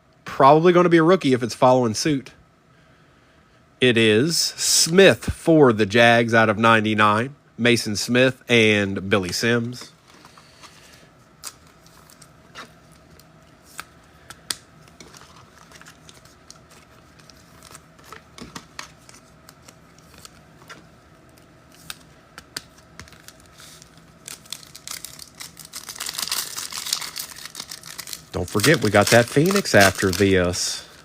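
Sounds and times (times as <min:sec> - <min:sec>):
foil wrapper crinkling and tearing: 0:11.4 - 0:20.4, 0:21.7 - 0:31.0.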